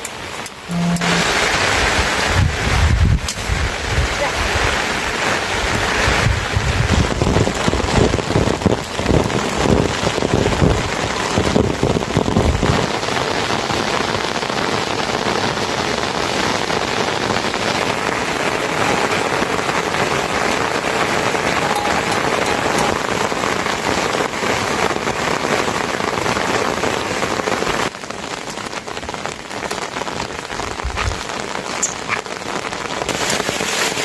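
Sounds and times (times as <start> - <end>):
steady rain falling: 0.0 - 34.0
wind buffeting microphone: 1.2 - 12.9.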